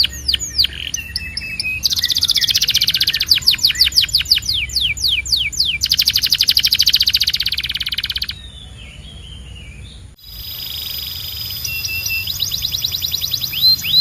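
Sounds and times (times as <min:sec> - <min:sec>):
canary singing: 0:00.0 - 0:14.0
steady high whistle tone: 0:10.2 - 0:14.0.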